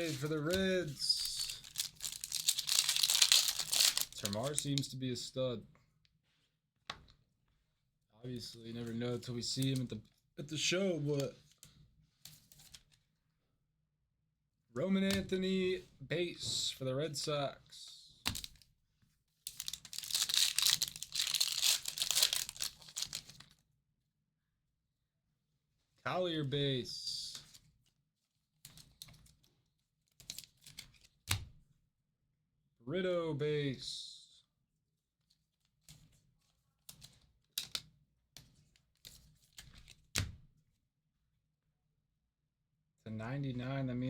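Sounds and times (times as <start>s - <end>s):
foil wrapper tearing and crumpling: 0.0s - 4.8s, 19.5s - 23.4s
cards rustling and clicking: 0.0s - 4.9s, 18.3s - 18.6s, 19.5s - 23.5s.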